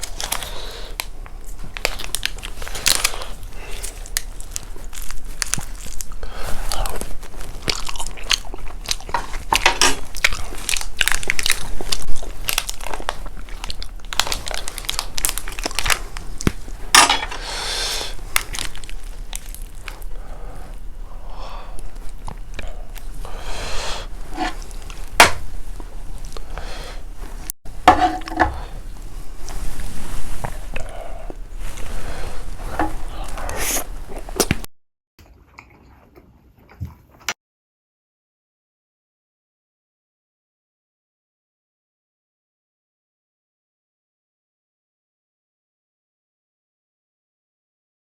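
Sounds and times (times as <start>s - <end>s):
crunchy chewing of chicken: 0.0s - 37.3s.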